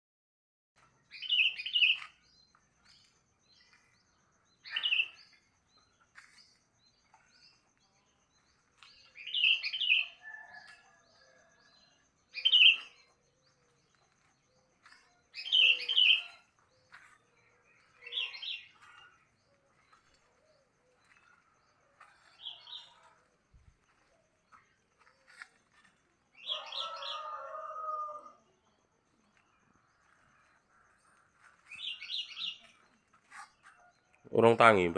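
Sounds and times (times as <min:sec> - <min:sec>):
faint chirps: 0:00.8 - 0:34.9
bulbul singing: 0:01.1 - 0:02.6, 0:03.5 - 0:06.4, 0:08.9 - 0:10.7, 0:12.3 - 0:13.4, 0:15.2 - 0:21.2.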